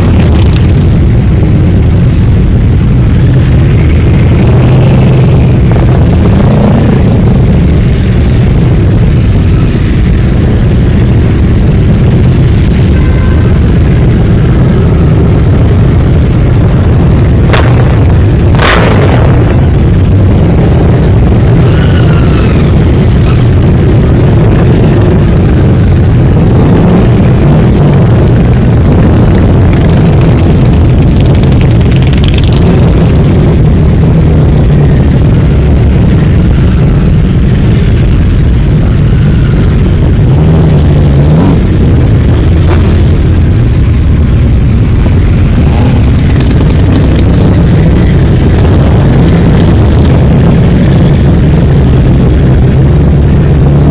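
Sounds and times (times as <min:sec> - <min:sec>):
sharp cracks: 0:17.4 - 0:19.9.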